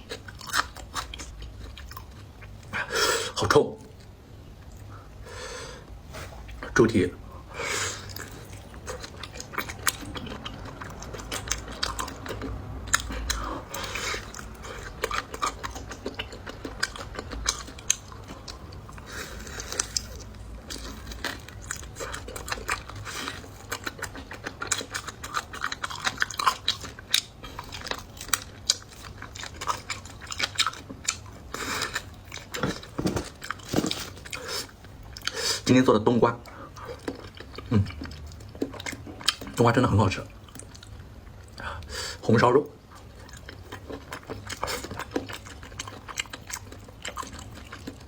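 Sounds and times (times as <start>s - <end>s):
person chewing and biting: 0.0s - 2.6s, 8.0s - 35.4s, 43.1s - 48.0s.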